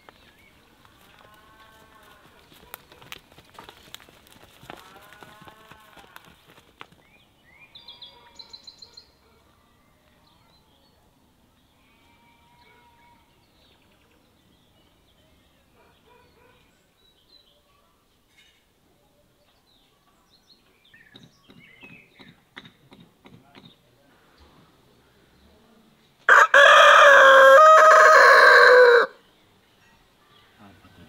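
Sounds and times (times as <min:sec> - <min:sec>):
small birds chirping: 0:19.0 - 0:25.8.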